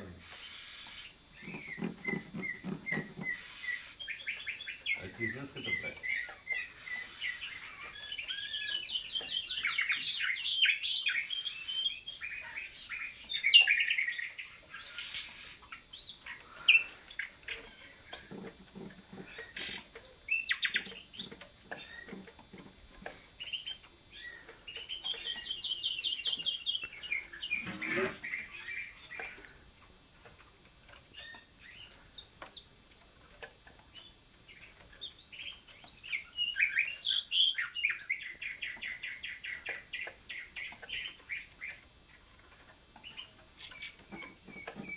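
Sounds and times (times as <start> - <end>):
birds singing trills: 0.0 - 44.9.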